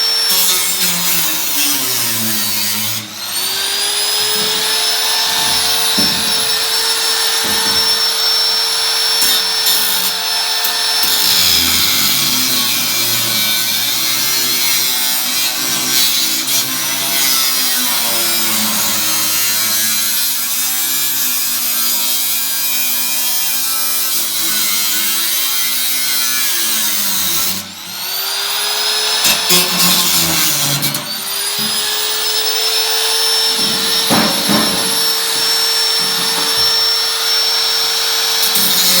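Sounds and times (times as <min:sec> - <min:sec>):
power tool motor whine: 0:01.6 - 0:12.6, 0:30.8 - 0:38.6.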